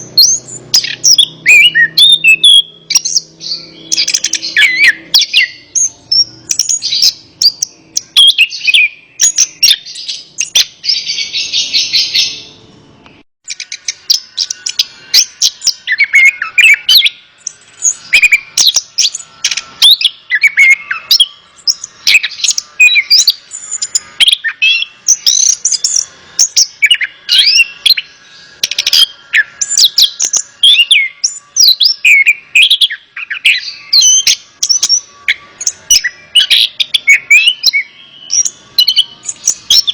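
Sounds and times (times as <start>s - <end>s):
thrush singing whistled phrases: 0.0s - 39.9s.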